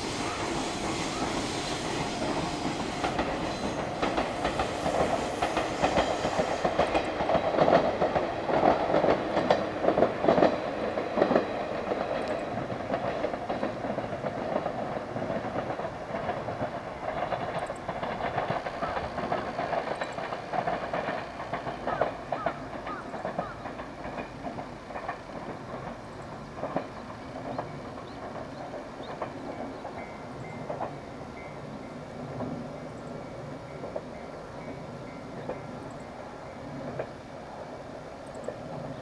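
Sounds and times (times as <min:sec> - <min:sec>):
train wheels clattering over rail joints: 0:00.0 - 0:37.2.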